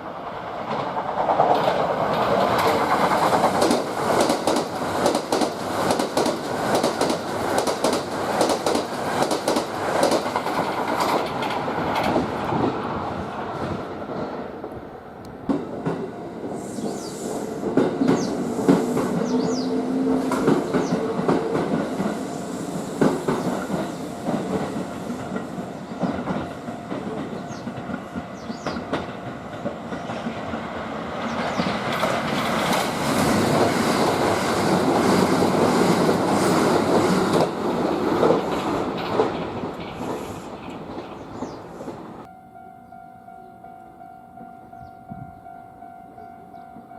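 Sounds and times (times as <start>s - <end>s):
train wheels clacking over rail joints: 0.6s - 12.9s, 17.6s - 42.0s
two-note whine: 42.3s - 46.9s.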